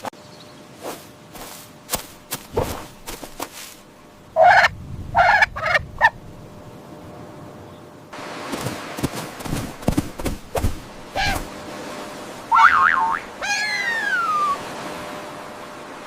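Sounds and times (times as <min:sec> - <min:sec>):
farm fowl calling: 0:04.3 - 0:06.2, 0:11.1 - 0:11.5, 0:12.5 - 0:14.6
steady noise: 0:08.1 - 0:13.4.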